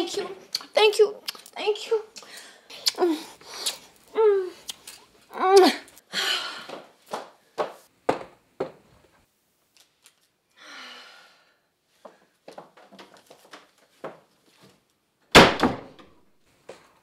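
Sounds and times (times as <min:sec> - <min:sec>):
wooden door slamming: 0:15.3 - 0:16.2.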